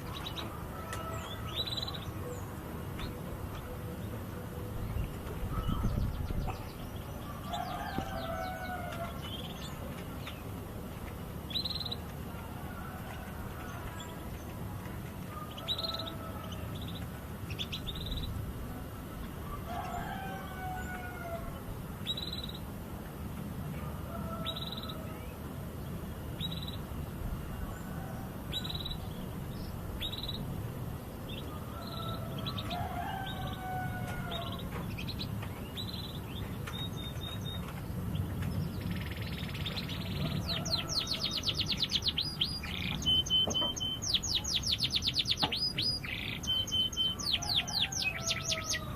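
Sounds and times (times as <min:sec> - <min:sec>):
canary chirping and trilling: 0:34.3 - 0:48.9.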